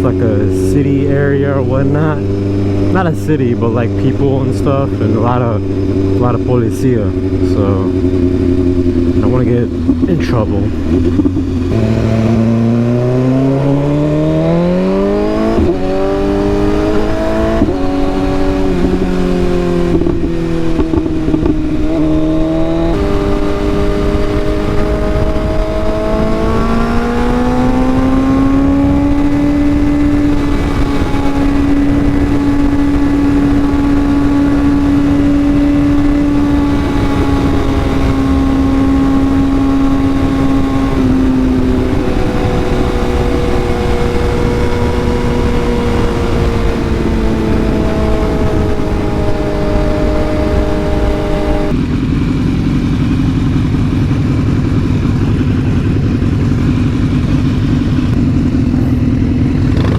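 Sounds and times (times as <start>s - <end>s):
motorcycle engine accelerating: 0.0s - 59.9s
wind rush: 1.4s - 52.0s.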